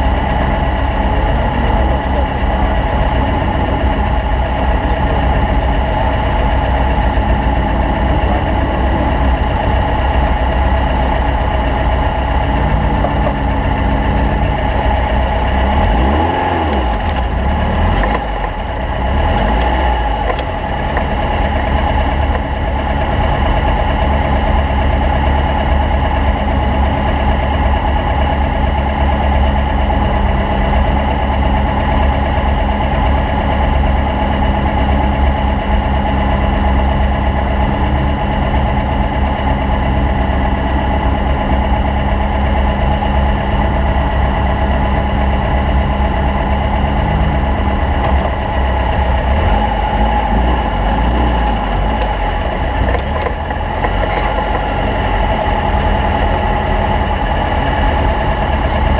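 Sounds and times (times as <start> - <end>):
race car engine running: 0.0 - 58.9.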